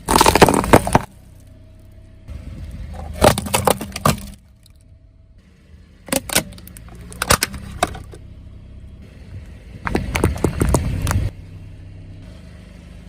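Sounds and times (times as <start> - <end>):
tyre crushing crunchy objects: 0.0 - 1.4, 2.9 - 4.4
car engine hum: 0.0 - 13.0.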